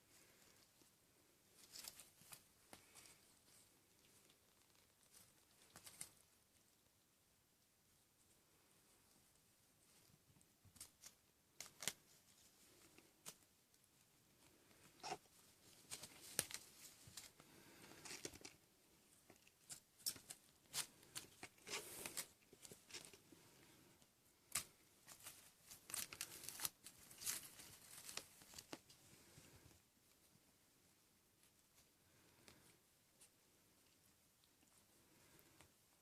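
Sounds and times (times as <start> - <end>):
kittens scratching and scrabbling: 1.4 - 6.4, 14.4 - 23.3, 24.5 - 29.7.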